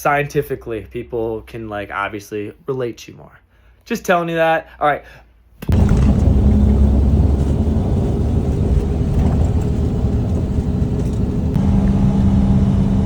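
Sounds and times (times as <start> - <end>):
truck engine rumbling: 5.7 - 13.0.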